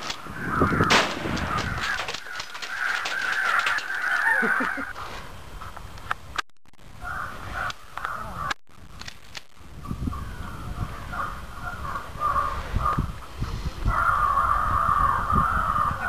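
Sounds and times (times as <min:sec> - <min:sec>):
crow cawing: 0:00.2 - 0:04.9, 0:07.0 - 0:08.5, 0:11.1 - 0:13.0, 0:13.9 - 0:16.0.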